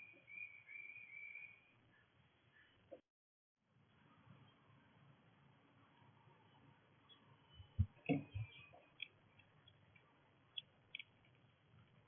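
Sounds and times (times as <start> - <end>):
faint bird chirps: 0.0 - 3.0, 6.0 - 9.9.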